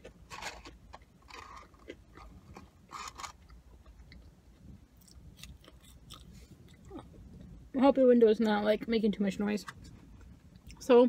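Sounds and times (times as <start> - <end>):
chewing crispy fries: 0.0 - 7.6.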